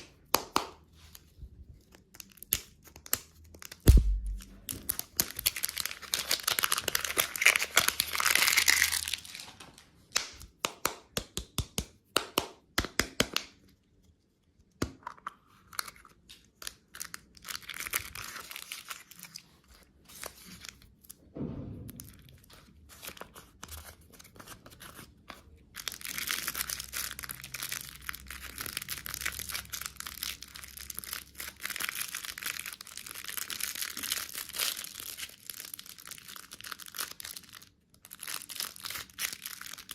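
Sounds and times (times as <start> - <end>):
wrapper crinkling and crumpling: 1.8 - 10.0, 15.7 - 21.1, 22.1 - 39.9.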